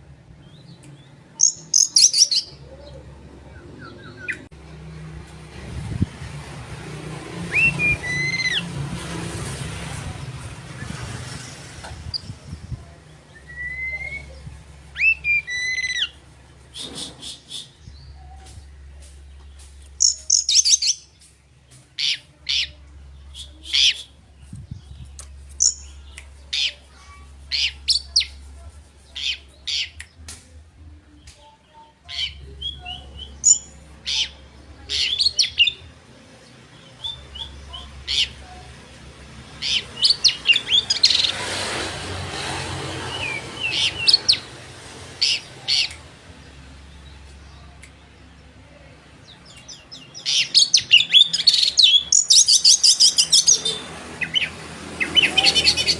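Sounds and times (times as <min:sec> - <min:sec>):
bird singing whistles and chirps: 0:13.3 - 0:14.4.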